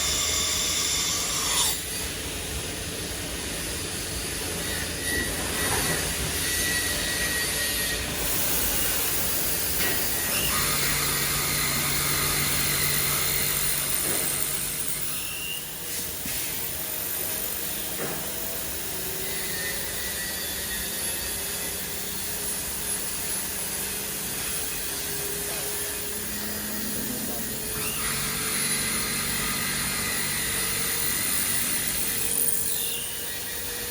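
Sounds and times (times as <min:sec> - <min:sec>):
machine whining tones: 0:03.4 - 0:33.9
machining centre running: 0:23.9 - 0:33.9.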